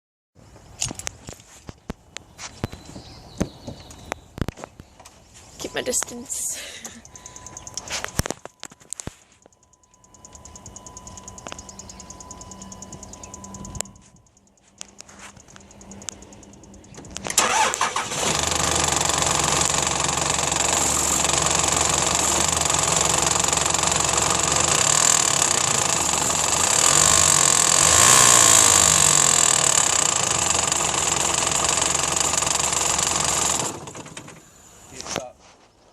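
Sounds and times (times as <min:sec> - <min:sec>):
diesel engine running: 0:05.6 - 0:09.1, 0:09.9 - 0:35.0.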